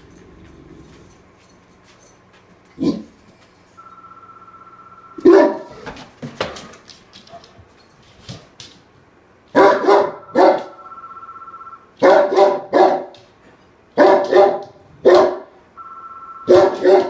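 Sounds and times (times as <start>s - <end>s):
dog barking: 5.2s - 5.8s, 9.5s - 10.8s, 12.0s - 13.1s, 14.0s - 15.5s, 16.5s - 17.0s.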